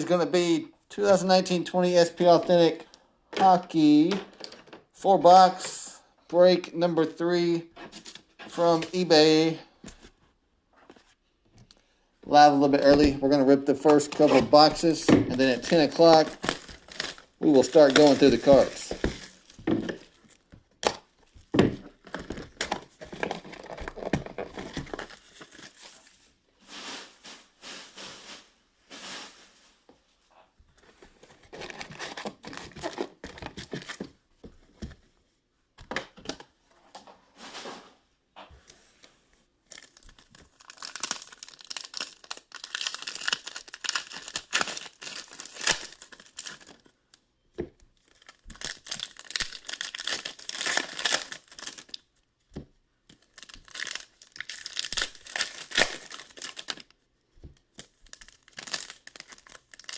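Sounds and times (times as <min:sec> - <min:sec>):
packaging crinkling and tearing: 0:13.9 - 0:26.2, 0:31.2 - 0:34.0, 0:39.7 - 0:46.9, 0:48.0 - 0:52.0, 0:53.1 - 0:57.0, 0:57.7 - 0:59.9.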